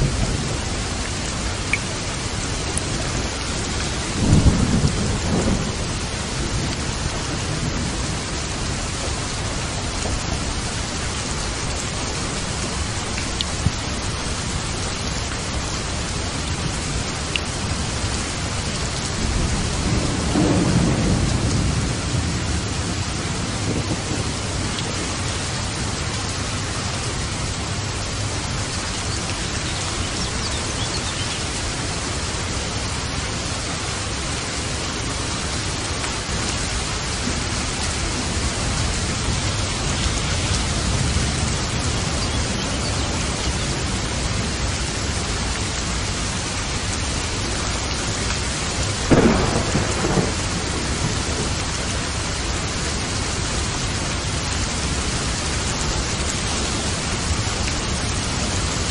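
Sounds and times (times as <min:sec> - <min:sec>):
low rumbling thunder: 0:00.0 - 0:11.9, 0:19.0 - 0:27.2, 0:48.8 - 0:53.0
heavy rain: 0:00.0 - 0:58.9
sharp thunderclap: 0:19.4 - 0:24.6, 0:49.1 - 0:51.6.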